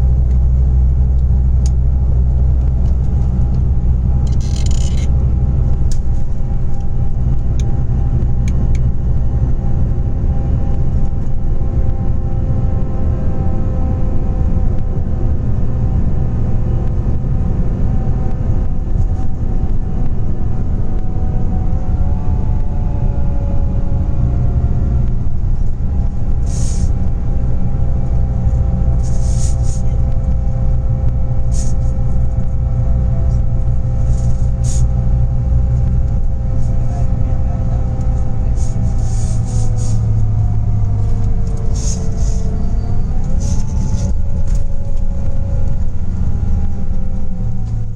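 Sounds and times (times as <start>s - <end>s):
bus engine rumbling: 0.0s - 47.9s
air brake hisses: 26.4s - 26.9s, 38.6s - 40.0s, 41.8s - 42.5s.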